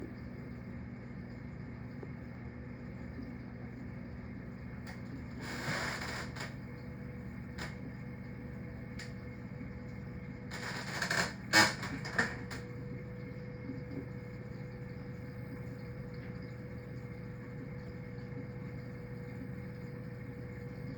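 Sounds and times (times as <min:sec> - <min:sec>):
aquarium equipment humming: 0:00.0 - 0:20.9.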